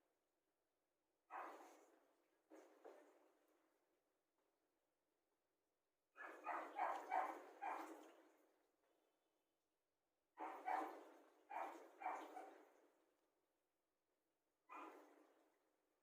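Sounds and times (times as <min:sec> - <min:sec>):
dog barking: 0:01.3 - 0:01.8, 0:06.2 - 0:08.1, 0:10.4 - 0:12.7, 0:14.7 - 0:15.1.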